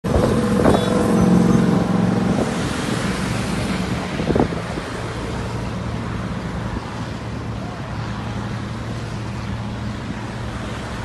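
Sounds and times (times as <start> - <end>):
wind noise on microphone: 0.0 - 7.3
propeller plane engine drone: 0.0 - 11.0.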